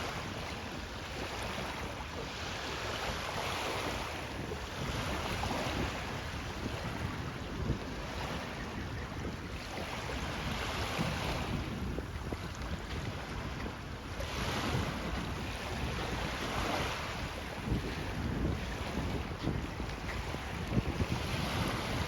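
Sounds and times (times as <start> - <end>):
wind buffeting the microphone: 0.0 - 22.0.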